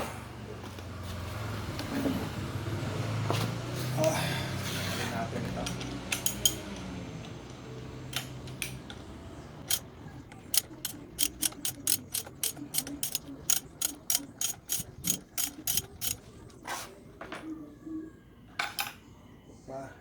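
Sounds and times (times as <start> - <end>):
ratchet wrench clicking: 5.6 - 8.8, 9.6 - 16.3.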